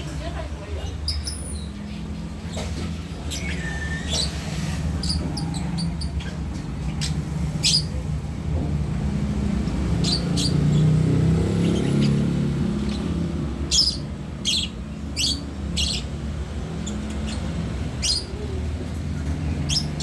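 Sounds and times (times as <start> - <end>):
bird chirping sharply: 10.0 - 16.2.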